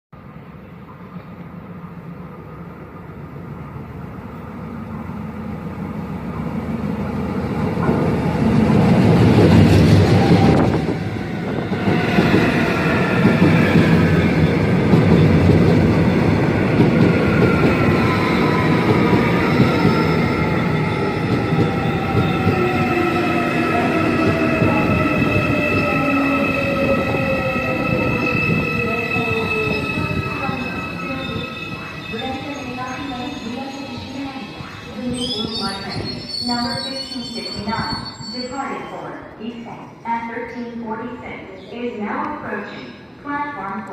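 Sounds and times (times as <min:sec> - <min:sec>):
train wheels rumbling on rails: 0:06.2 - 0:38.3
high-pitched wheel squeal: 0:27.0 - 0:39.1.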